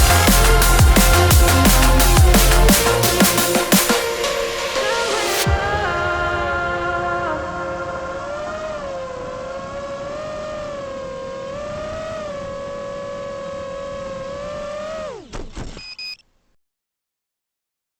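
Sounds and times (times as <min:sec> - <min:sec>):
drone motors whining: 0:07.4 - 0:16.2.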